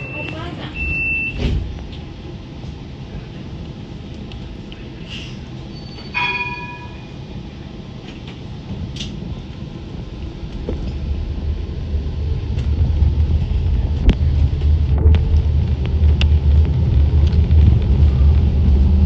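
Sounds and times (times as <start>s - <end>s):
tram running along rails: 0.0s - 19.0s
tram bell chime: 6.0s - 7.3s.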